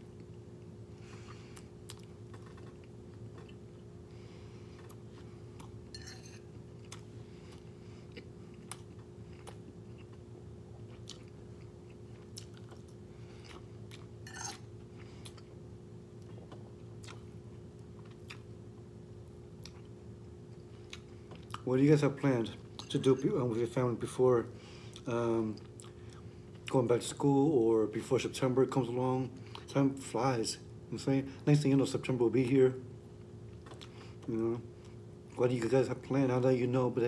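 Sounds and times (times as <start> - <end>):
steady low hum: 0.0 - 37.0
person chewing food: 0.2 - 3.9, 4.6 - 15.6, 16.2 - 18.6, 19.6 - 21.6, 33.2 - 35.0.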